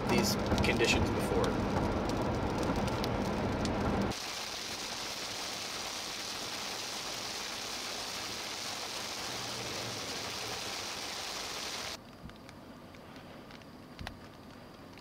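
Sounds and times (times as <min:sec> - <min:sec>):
heavy rain on wet road: 0:00.0 - 0:12.0.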